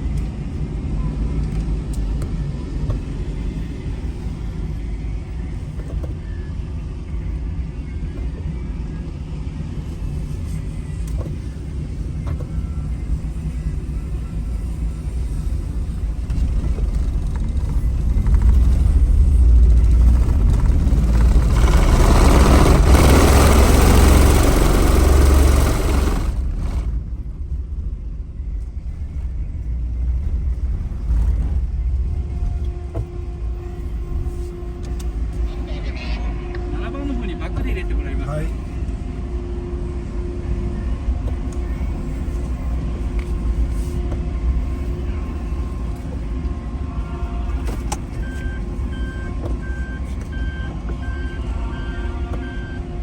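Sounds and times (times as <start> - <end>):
vehicle engine rumbling: 0.0 - 53.0
loud rushing noise: 15.7 - 27.4.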